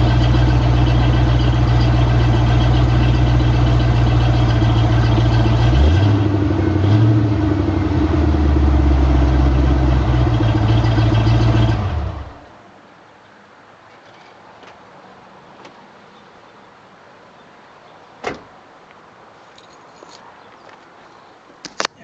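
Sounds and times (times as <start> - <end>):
car engine running: 0.0 - 12.5.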